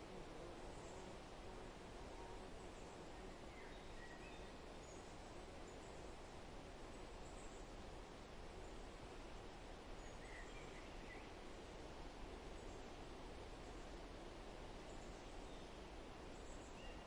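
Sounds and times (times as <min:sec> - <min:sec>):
steady hiss: 0:00.0 - 0:17.0
soft bird chirps: 0:02.6 - 0:06.1, 0:10.0 - 0:11.4, 0:14.8 - 0:17.0.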